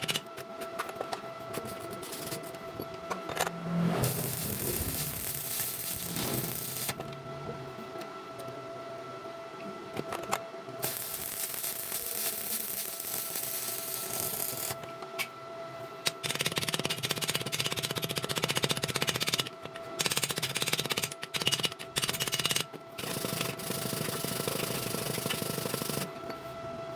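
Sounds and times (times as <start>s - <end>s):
welding arc crackling and hissing: 4.0s - 7.0s, 10.8s - 14.8s.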